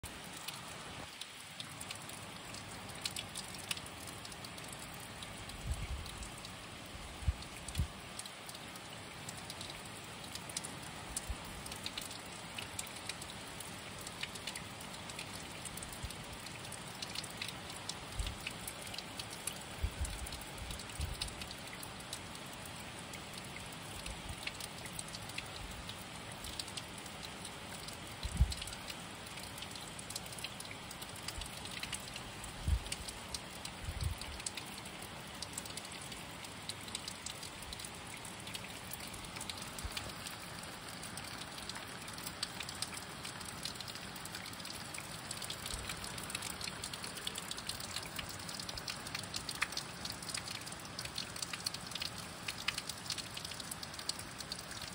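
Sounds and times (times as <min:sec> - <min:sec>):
rain falling: 0:00.0 - 0:54.9
drip taps: 0:07.2 - 0:08.6, 0:27.8 - 0:34.8, 0:35.4 - 0:54.9.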